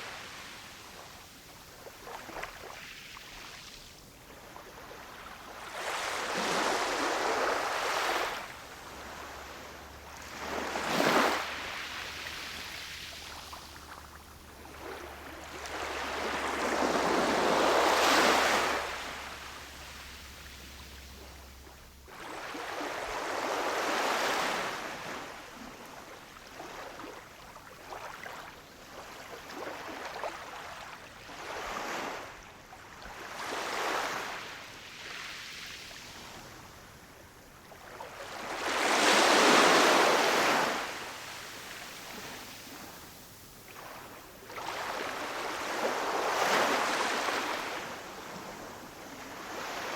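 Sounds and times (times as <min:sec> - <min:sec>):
ocean waves breaking on shore: 0:00.0 - 0:25.8, 0:37.4 - 0:49.9.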